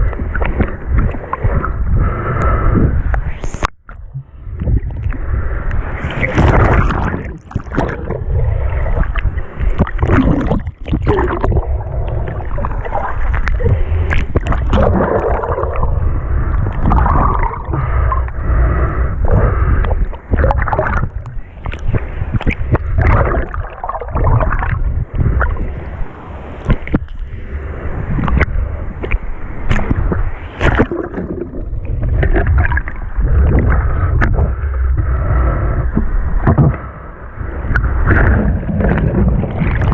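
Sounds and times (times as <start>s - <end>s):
sea water sloshing and gurgling: 0.0s - 39.9s.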